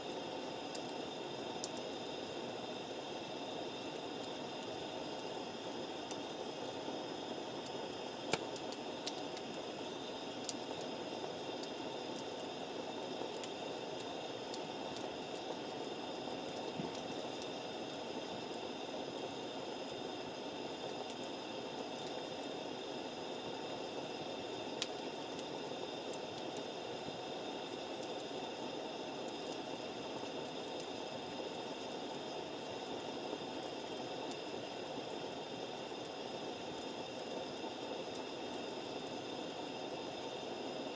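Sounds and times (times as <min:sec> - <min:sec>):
campfire hissing: 0:00.0 - 0:40.9
campfire pops: 0:08.3 - 0:09.6.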